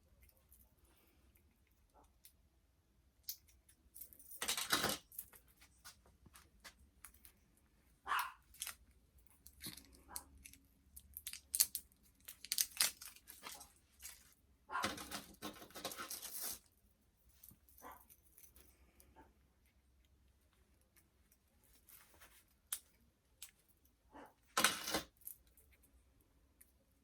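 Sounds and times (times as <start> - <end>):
plastic crinkling and tearing: 9.5 - 16.7.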